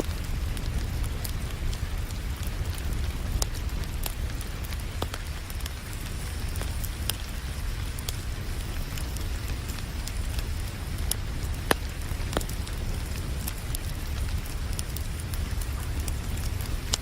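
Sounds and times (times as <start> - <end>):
rain hiss: 0.0 - 17.0
wood fire crackling and popping: 0.0 - 17.0.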